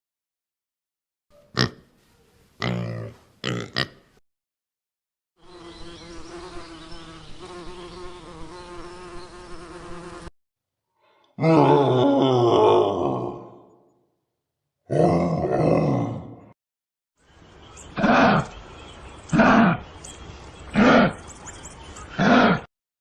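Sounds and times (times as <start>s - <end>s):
flying insect buzzing: 5.4s - 10.3s.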